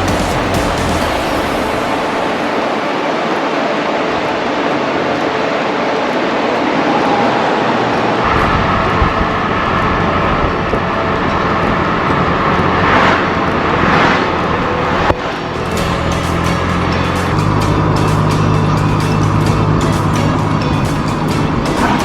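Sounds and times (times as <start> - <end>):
car road and engine noise: 0.0 - 22.0
deep rumble: 8.2 - 22.0.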